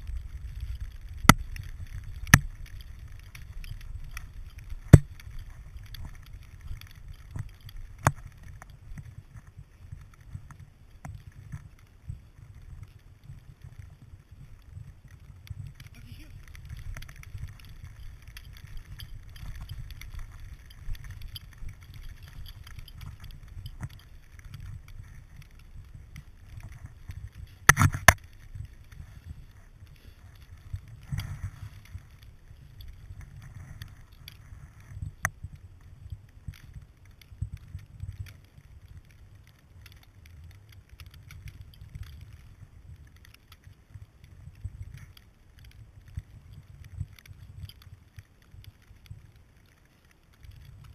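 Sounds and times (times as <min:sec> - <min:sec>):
muffled camera housing rumbling: 0:00.0 - 0:39.4
small clicks: 0:00.0 - 0:50.9
snow crunching: 0:00.0 - 0:50.9.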